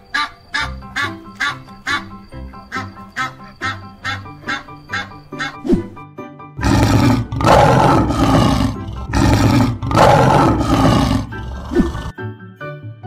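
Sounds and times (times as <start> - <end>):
background music: 0.0 - 13.0
lion roaring: 6.6 - 12.1.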